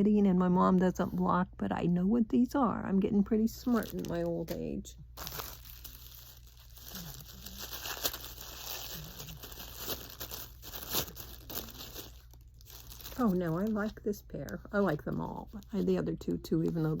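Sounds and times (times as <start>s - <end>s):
packaging crinkling and tearing: 3.6s - 14.0s.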